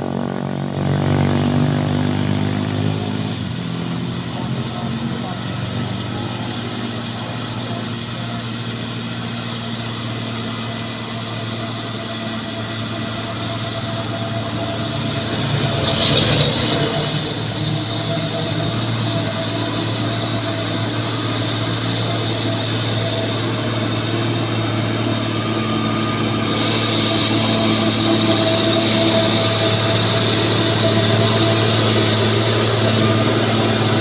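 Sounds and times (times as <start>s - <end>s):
heavy truck engine running: 0.0s - 34.0s
rushing noise: 10.9s - 34.0s.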